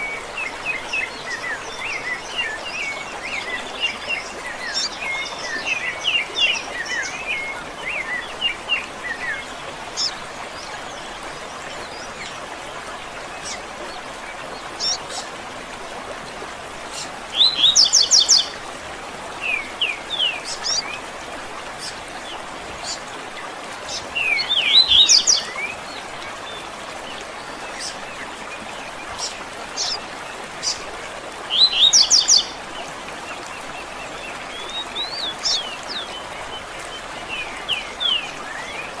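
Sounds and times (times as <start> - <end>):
birds singing and chirping: 16.9 - 18.6, 23.9 - 26.6, 31.5 - 32.7, 33.6 - 38.9.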